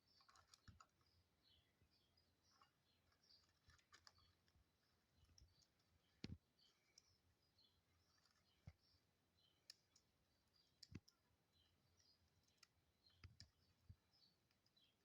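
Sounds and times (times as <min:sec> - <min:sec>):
faint sharp clicks and ticks: 0:02.5 - 0:07.2, 0:08.0 - 0:15.0.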